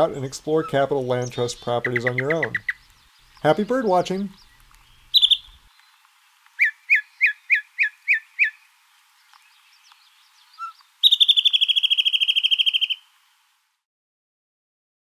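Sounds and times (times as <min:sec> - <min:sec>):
bird whistled notes: 0:04.4 - 0:05.6, 0:10.6 - 0:13.0.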